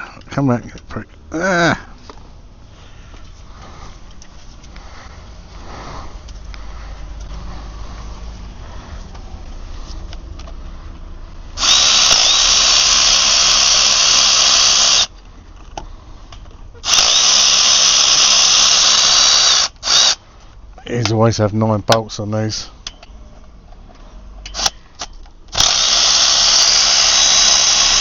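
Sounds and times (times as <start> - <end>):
power tool running: 11.6 - 15.1, 16.8 - 20.2, 25.5 - 28.0.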